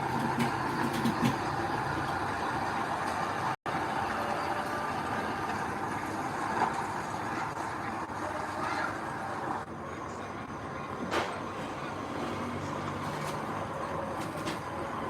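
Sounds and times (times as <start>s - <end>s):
heavy machinery diesel drone: 0.0s - 15.0s.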